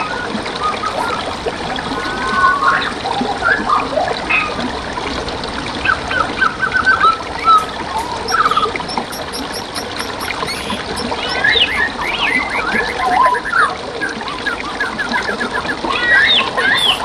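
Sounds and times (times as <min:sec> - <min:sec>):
stream water trickling: 0:00.0 - 0:17.0
songbirds chirping and whistling: 0:05.8 - 0:17.0.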